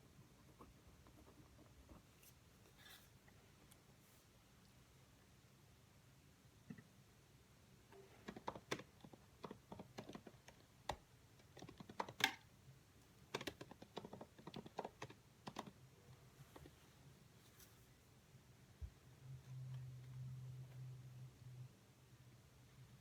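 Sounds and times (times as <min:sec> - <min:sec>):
typing on computer keyboard: 0:08.2 - 0:12.4, 0:13.3 - 0:15.8.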